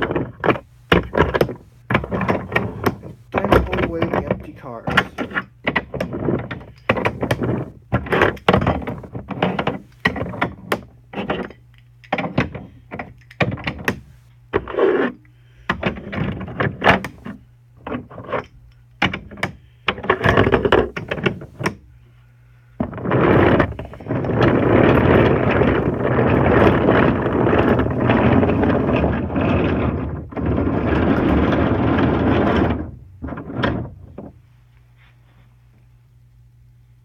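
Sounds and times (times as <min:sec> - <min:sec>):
wooden toy train knocks and clacks: 0:00.0 - 0:14.1.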